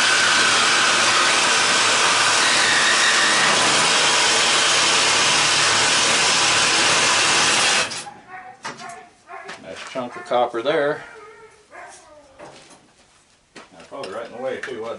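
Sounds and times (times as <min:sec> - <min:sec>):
power tool cutting copper tubing: 0:00.0 - 0:08.1.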